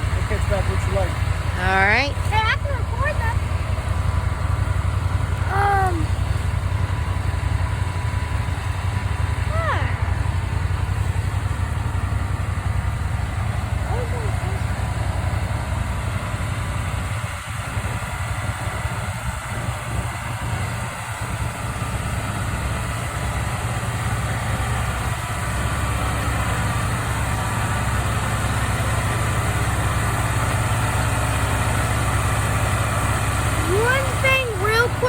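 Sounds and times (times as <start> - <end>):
engine idling: 0.0 - 35.0.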